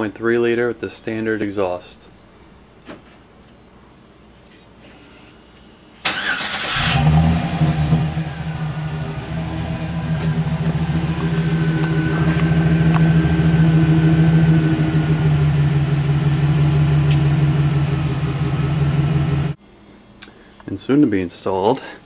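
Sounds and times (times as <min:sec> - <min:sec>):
truck engine running: 0:06.2 - 0:19.6.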